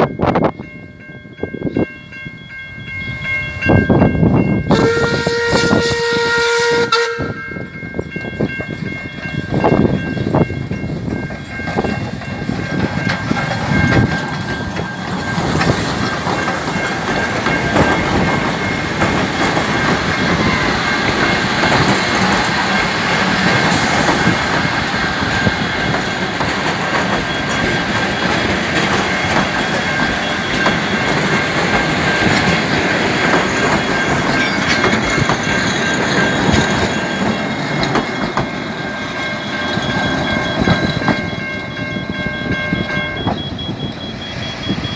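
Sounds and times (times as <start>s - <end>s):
steam train rolling past: 0.0s - 44.9s
steady high-pitched tones: 8.0s - 44.9s
wheels clicking over rail joints: 9.2s - 44.0s.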